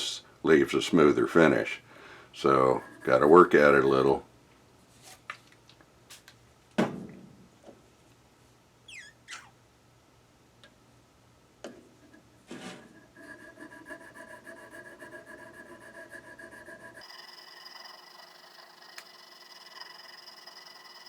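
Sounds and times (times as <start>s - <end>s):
squeaks and clicks: 8.9s - 9.6s
stone rubbing on steel: 12.9s - 21.0s.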